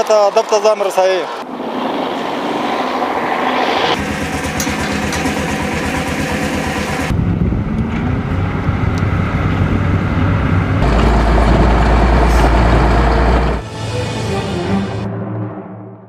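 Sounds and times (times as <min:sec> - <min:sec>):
heavy diesel engines rumbling: 0:04.0 - 0:15.1
strong deep hum: 0:04.0 - 0:16.0.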